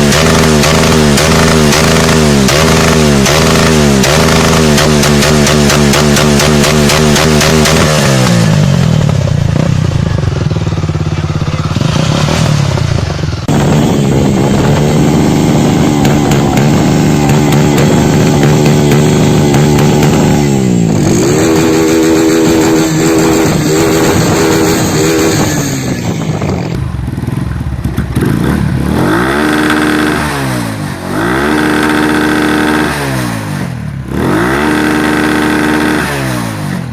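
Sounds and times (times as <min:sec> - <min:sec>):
motorcycle engine revving: 0:00.0 - 0:36.9.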